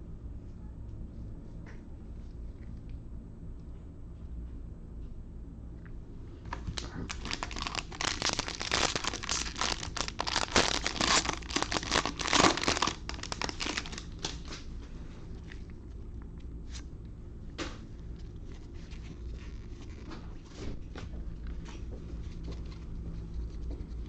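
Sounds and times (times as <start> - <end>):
plastic wrapper crinkling and tearing: 6.5 - 14.7, 18.1 - 20.4.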